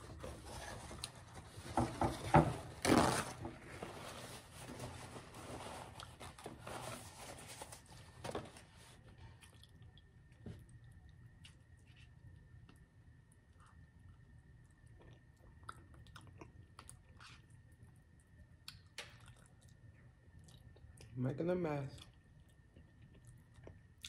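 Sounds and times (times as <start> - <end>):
wet chewing: 18.6 - 21.1.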